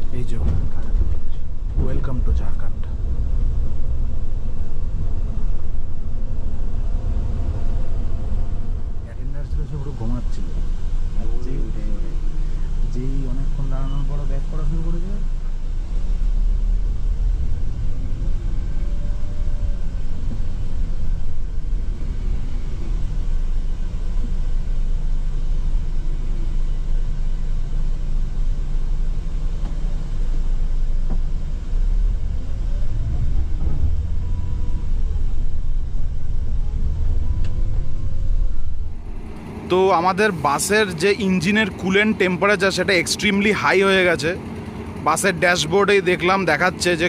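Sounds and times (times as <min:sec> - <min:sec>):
faint whine: 0:00.0 - 0:43.0
coach engine rumble: 0:00.0 - 0:47.0.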